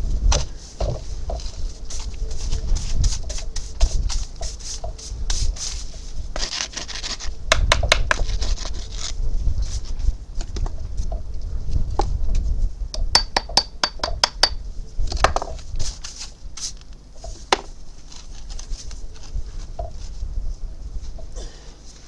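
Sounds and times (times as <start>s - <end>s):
scrape: 0.4s - 7.4s, 8.1s - 10.2s, 15.6s - 20.2s.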